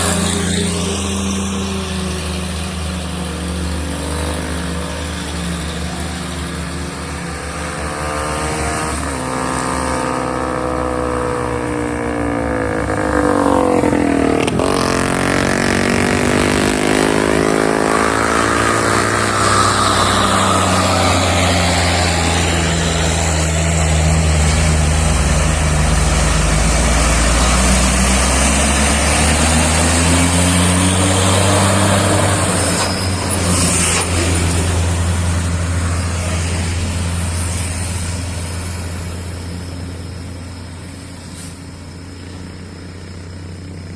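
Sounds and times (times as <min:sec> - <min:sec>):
heavy truck engine labouring: 0:00.0 - 0:43.9
vehicle passing by: 0:12.7 - 0:39.9.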